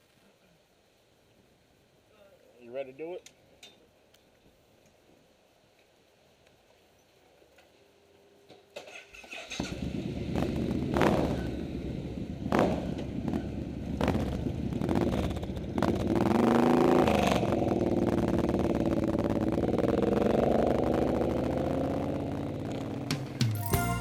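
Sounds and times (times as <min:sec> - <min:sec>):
motorcycle engine revving: 0:09.5 - 0:23.5.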